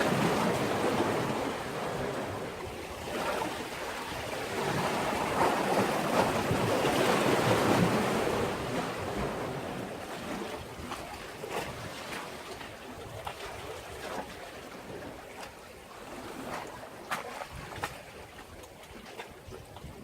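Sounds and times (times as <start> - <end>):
sea waves washing against breakwater: 0.0 - 20.0
small water splashes: 10.4 - 20.0.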